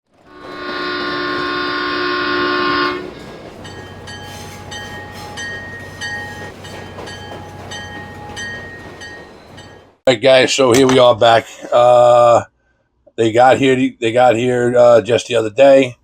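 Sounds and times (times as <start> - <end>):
train horn blast: 0.1 - 5.3
bell ringing: 0.3 - 10.0.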